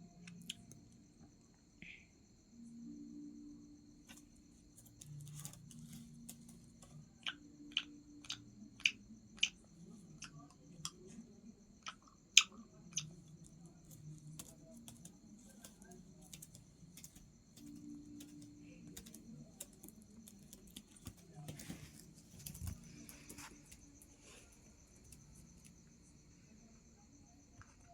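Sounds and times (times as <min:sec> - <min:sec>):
crickets trilling: 0:00.0 - 0:27.9.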